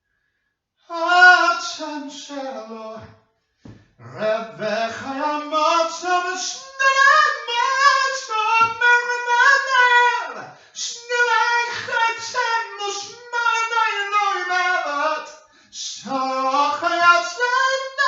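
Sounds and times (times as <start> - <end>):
person singing unaccompanied: 0.9 - 3.0, 4.0 - 18.0.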